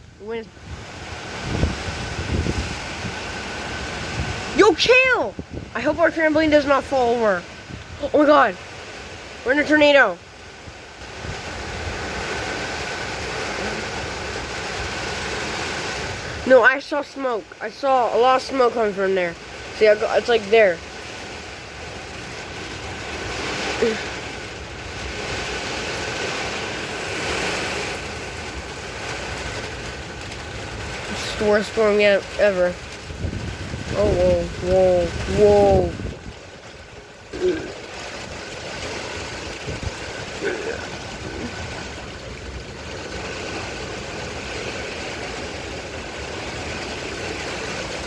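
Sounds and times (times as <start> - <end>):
heavy rain: 0.0 - 48.0
strong wind gusting: 0.0 - 48.0.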